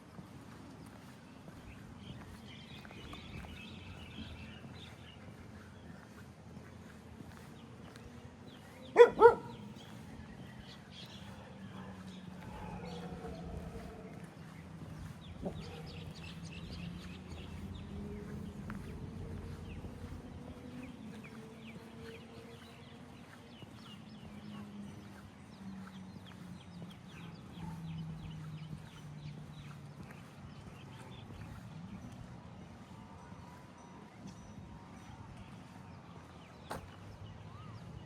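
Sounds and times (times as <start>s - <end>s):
footsteps on paving: 0.0s - 38.0s
dog barking: 8.9s - 9.7s, 11.4s - 14.1s, 15.4s - 16.2s.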